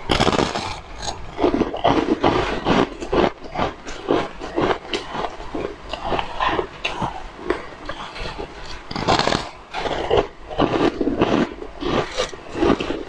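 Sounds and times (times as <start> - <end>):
crunching and chewing snack: 0.0 - 13.0.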